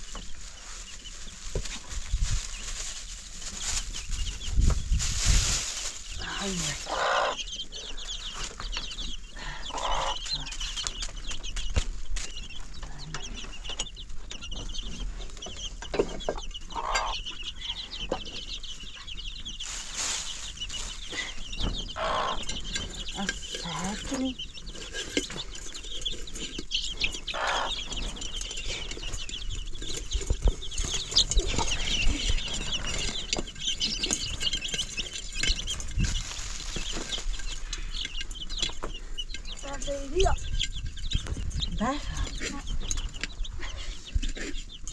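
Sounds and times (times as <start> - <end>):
chickens clucking: 0.0 - 44.9
high-pitched chirping: 16.6 - 44.9.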